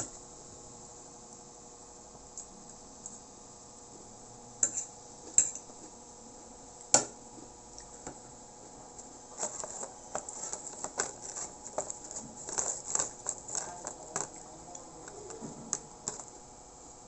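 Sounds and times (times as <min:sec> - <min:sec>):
crunching: 0:09.3 - 0:16.3
utensil clinking against bowl: 0:09.4 - 0:16.3.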